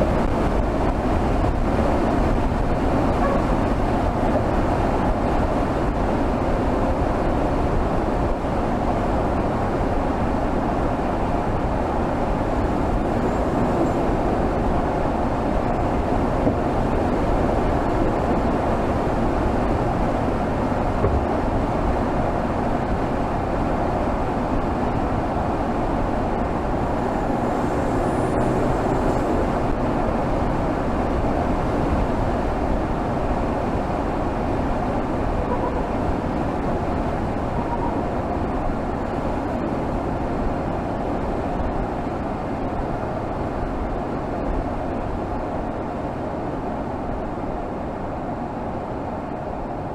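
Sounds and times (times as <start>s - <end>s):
road noise: 0.0s - 49.9s
car engine cruising: 11.6s - 23.0s, 23.9s - 32.3s.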